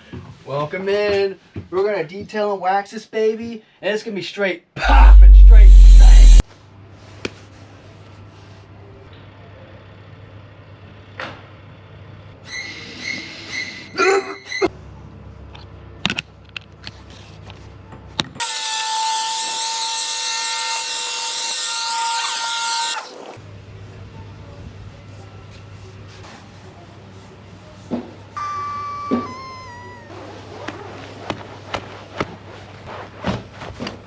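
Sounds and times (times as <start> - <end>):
power tool whining: 4.8 - 6.4, 18.4 - 23.4.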